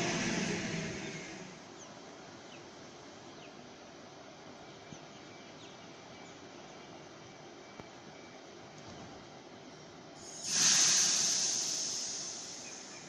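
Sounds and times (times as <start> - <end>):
electric train running: 0.0 - 1.9, 10.2 - 13.0
quiet outdoor ambience: 0.0 - 13.0.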